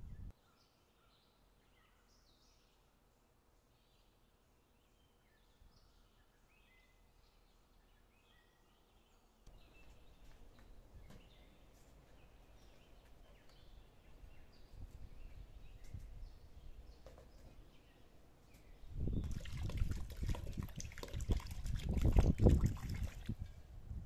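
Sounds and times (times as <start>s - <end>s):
birds chirping: 3.8s - 19.8s.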